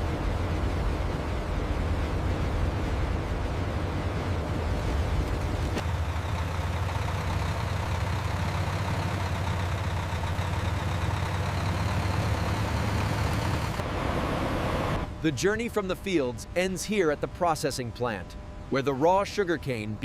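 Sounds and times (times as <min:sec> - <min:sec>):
heavy vehicle engine running: 0:00.0 - 0:20.0.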